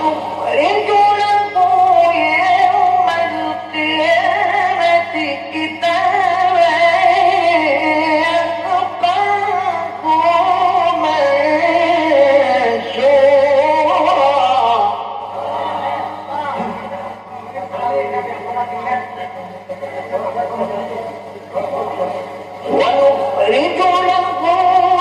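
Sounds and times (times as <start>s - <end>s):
steady low hum: 0.0s - 25.0s
man chanting melodically: 22.1s - 25.0s.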